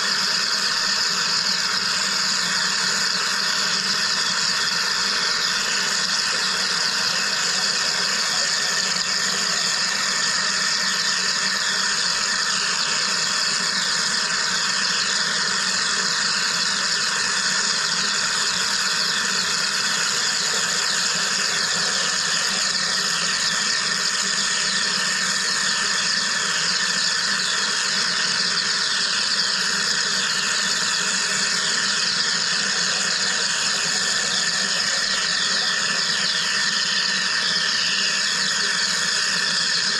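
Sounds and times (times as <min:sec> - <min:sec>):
machine hissing and crackling: 0:00.0 - 0:39.9
machine whining tones: 0:00.0 - 0:39.9.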